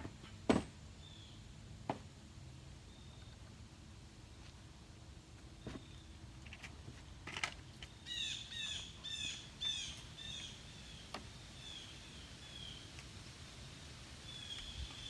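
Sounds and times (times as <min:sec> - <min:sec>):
bird chirping: 0:07.9 - 0:12.9.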